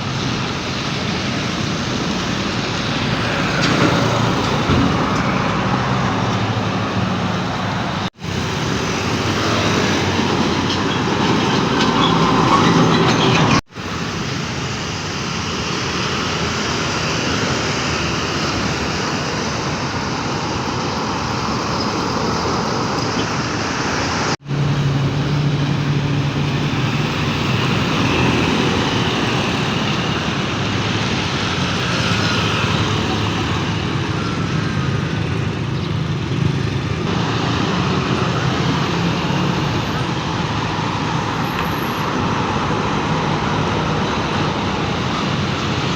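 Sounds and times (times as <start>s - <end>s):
road traffic noise: 0.0s - 45.9s
truck diesel engine running: 0.0s - 45.9s
low engine hum: 24.2s - 45.9s.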